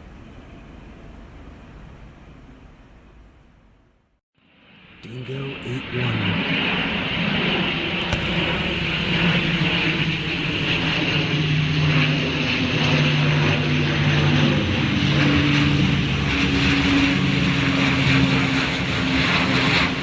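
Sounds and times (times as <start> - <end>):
propeller aircraft drone: 4.4 - 20.0.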